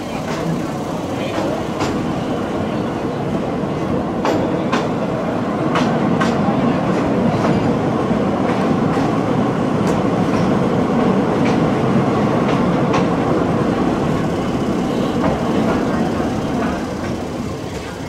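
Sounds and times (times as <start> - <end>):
wheels clacking over rail joints: 0.0 - 7.8, 12.4 - 18.0
train wheels rumbling on rails: 0.0 - 18.0.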